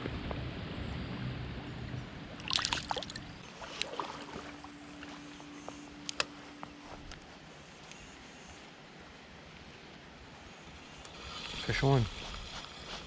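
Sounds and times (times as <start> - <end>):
creek water splashing: 2.4 - 5.4.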